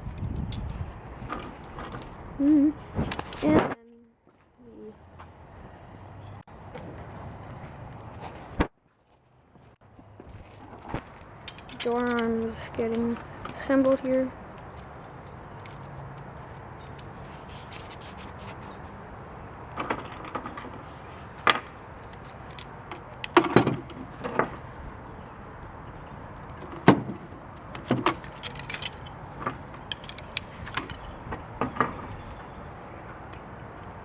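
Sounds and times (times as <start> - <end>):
metal hardware clinking: 10.8 - 13.6, 19.7 - 24.8, 26.6 - 32.3.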